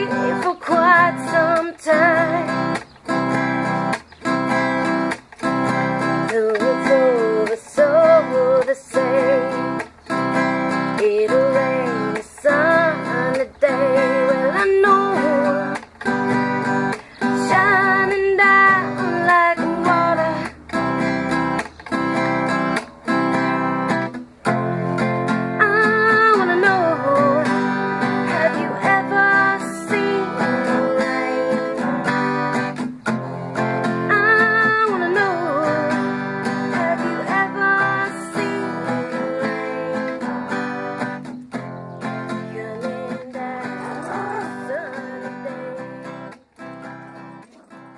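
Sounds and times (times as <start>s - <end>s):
person singing: 0.0s - 3.8s, 5.6s - 21.5s, 24.7s - 41.3s, 42.0s - 47.9s
acoustic guitar strumming: 0.0s - 47.9s.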